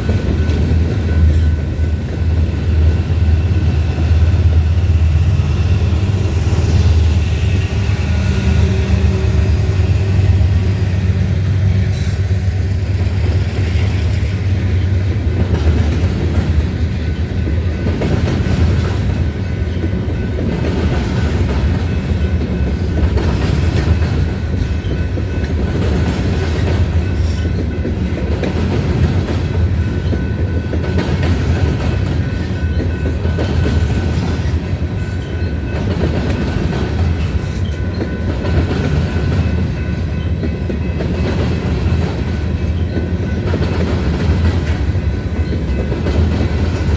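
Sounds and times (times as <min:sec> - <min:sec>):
freight train rumbling past: 0:00.0 - 0:46.9
wheels clicking over rail joints: 0:14.6 - 0:46.9.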